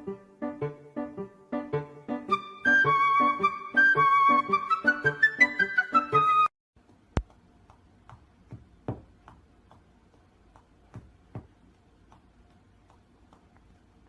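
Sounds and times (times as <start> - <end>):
faint ticks and taps: 6.8 - 14.0
low background hum: 6.8 - 14.0.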